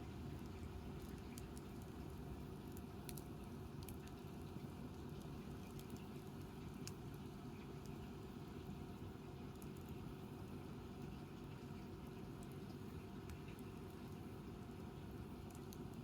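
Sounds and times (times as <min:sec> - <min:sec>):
low rumble of flame: 0:00.0 - 0:16.0
fire crackles and pops: 0:00.1 - 0:08.1, 0:12.2 - 0:16.0.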